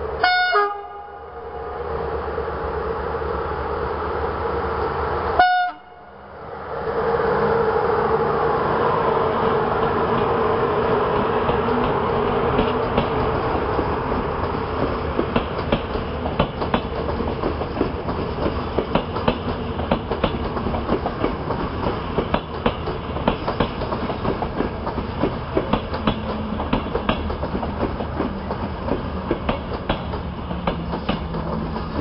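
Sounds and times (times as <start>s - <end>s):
train wheels rumbling on rails: 6.4s - 32.0s
wheels clicking over rail joints: 11.1s - 32.0s.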